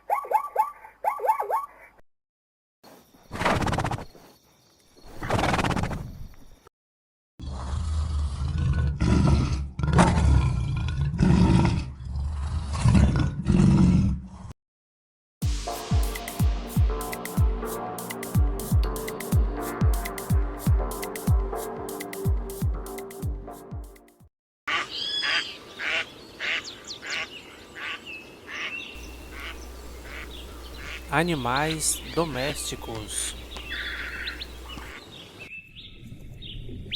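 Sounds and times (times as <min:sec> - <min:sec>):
large animal roaring: 0:07.4 - 0:14.5
ducks quacking: 0:24.7 - 0:35.0.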